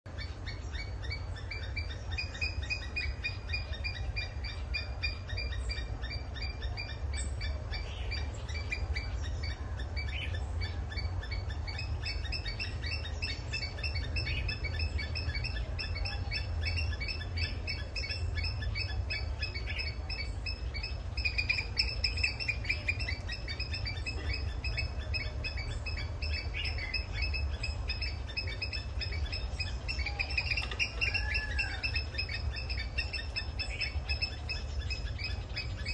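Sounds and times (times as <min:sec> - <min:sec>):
hornbill chattering: 0:00.1 - 0:35.9.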